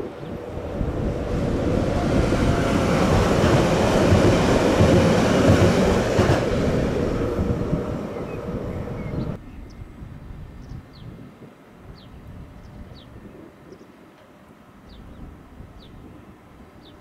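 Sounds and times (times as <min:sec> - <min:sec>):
train wheels rumbling on rail: 0:00.0 - 0:09.4.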